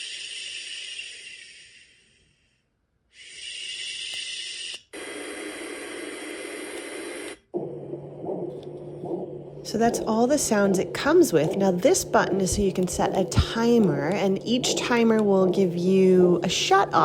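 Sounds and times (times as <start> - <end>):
steady low hum: 6.3 - 17.0.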